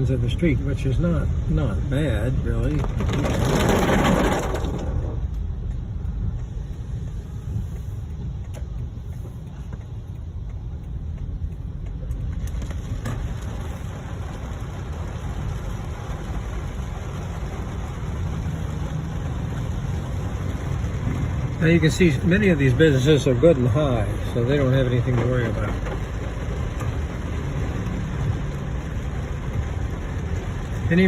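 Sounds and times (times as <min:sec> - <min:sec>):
car engine and tyres rumbling: 0:00.0 - 0:31.0
tyres hissing on wet road: 0:06.2 - 0:10.2, 0:12.2 - 0:31.0.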